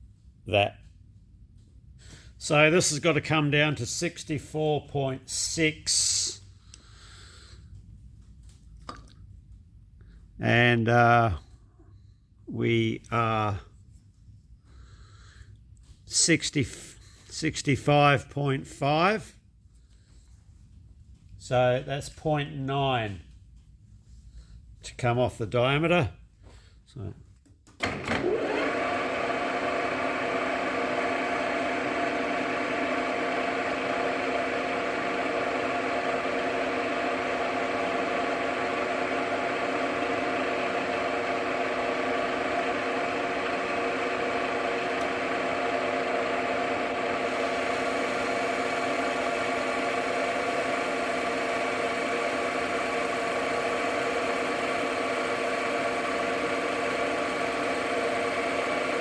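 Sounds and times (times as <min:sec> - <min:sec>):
metal lathe motor humming: 0:28.2 - 0:59.0.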